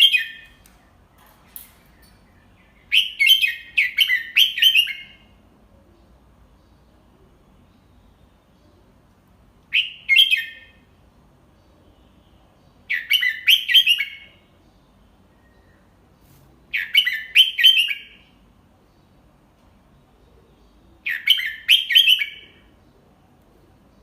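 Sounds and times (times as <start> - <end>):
bulbul singing: 0.0 - 5.4.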